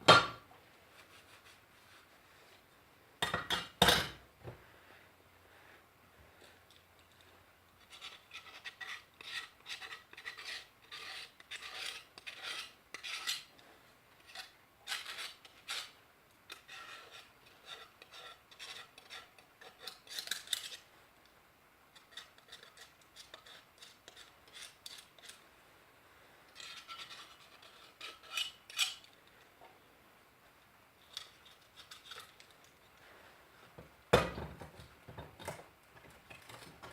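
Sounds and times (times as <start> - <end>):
scraping paint off metal: 7.8 - 13.5, 14.2 - 20.8.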